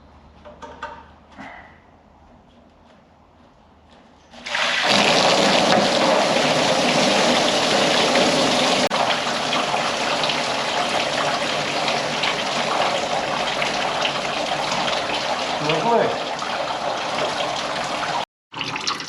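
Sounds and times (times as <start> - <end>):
coolant pouring out: 4.4 - 19.0.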